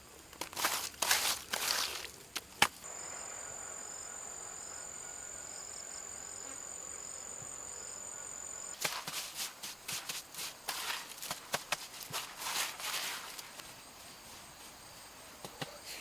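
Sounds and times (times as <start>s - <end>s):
rustling and scraping: 0.4s - 2.8s, 8.8s - 15.6s
insect high-pitched call: 2.8s - 8.8s.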